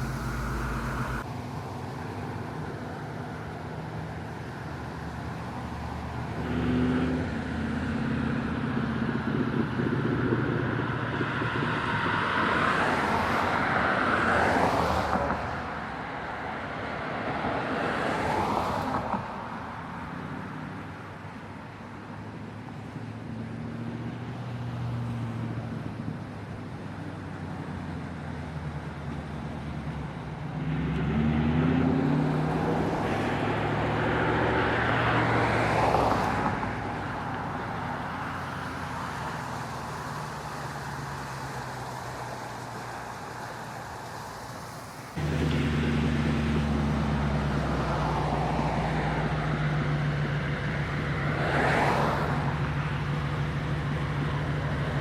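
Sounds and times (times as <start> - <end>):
loud steady engine: 0.0 - 5.4, 36.6 - 51.2
cars and trucks driving past: 0.0 - 55.0.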